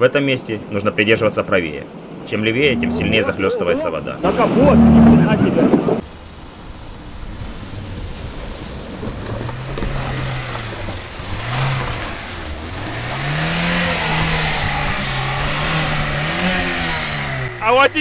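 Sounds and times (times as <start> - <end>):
water rushing and splashing: 2.1 - 16.9
vehicle engine revving: 2.4 - 6.0, 7.1 - 17.7.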